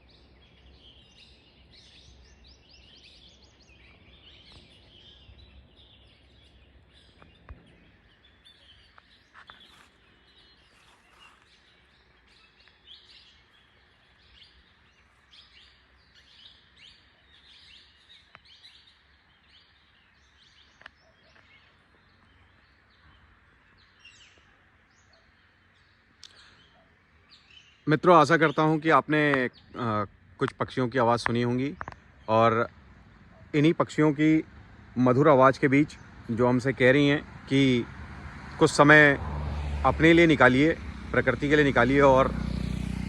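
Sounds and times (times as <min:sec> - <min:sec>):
birds chirping and calling: 0:00.0 - 0:43.0.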